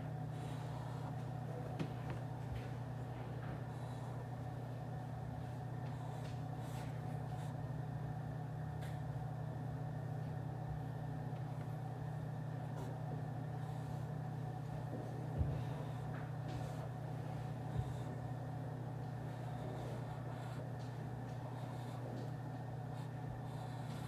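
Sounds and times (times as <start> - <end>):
ventilation hum: 0.0 - 24.0.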